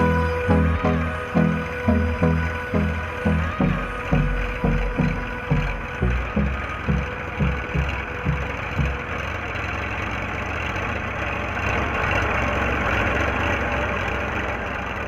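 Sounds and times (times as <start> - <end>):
tractor diesel engine running: 0.0 - 15.0
regular thudding beat: 1.4 - 9.2.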